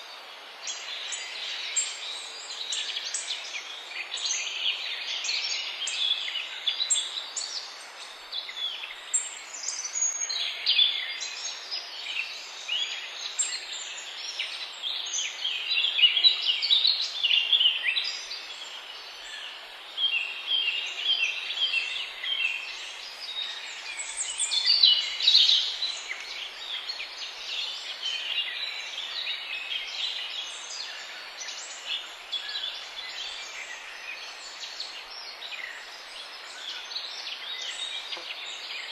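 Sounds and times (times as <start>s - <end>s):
faint steady hiss: 0.0s - 38.9s
songbirds chirping and trilling: 0.0s - 38.9s.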